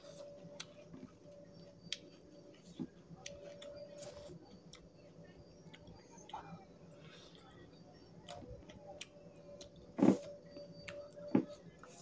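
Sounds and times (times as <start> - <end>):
man chewing food: 0.0 - 7.4
faint steady hum: 0.0 - 12.0.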